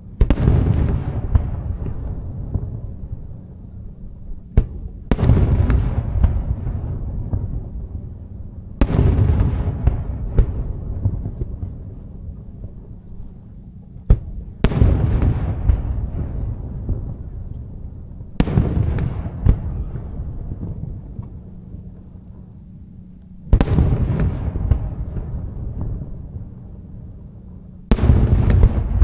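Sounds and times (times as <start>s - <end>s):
fireworks crackling and rumble: 0.0s - 29.0s
fireworks bangs: 18.4s - 21.0s, 27.9s - 29.0s.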